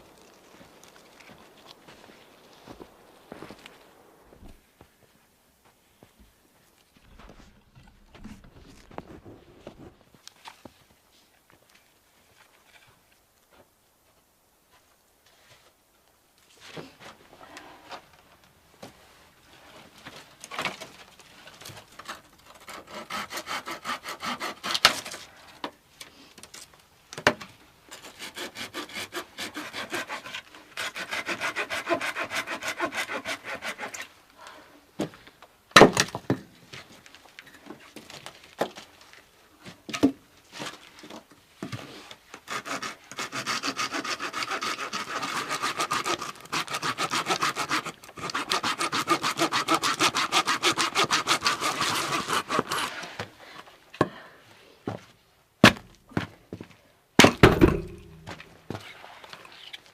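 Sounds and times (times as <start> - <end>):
hand saw cutting wood: 22.0 - 25.2, 27.9 - 34.2, 42.4 - 53.2
sharp knocks: 57.2 - 58.4.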